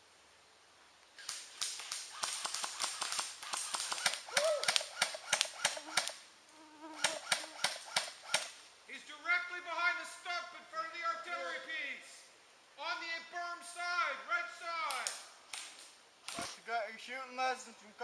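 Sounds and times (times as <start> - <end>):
airsoft guns firing: 1.2 - 6.2, 7.0 - 8.6.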